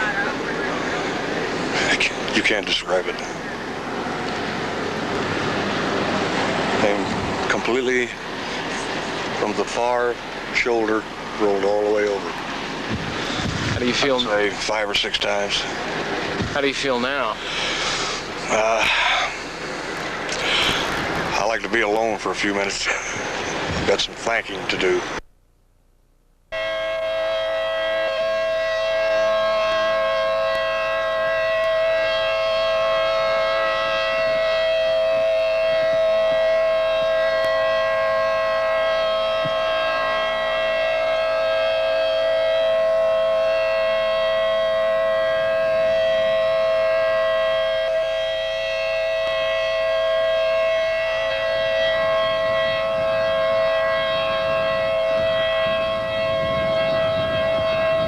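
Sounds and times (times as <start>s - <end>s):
warning siren steady tone: 0.0s - 25.2s, 26.5s - 58.0s.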